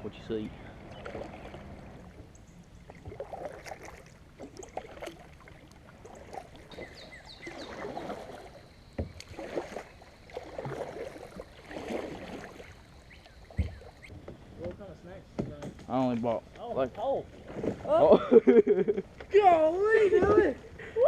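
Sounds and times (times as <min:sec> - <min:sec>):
paddle strokes splashing water: 0:00.1 - 0:14.7, 0:16.0 - 0:21.0.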